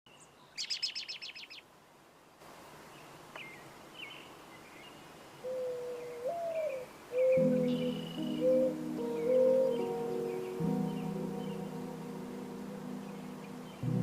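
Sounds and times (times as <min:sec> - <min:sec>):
steady musical tone: 0:07.4 - 0:14.0.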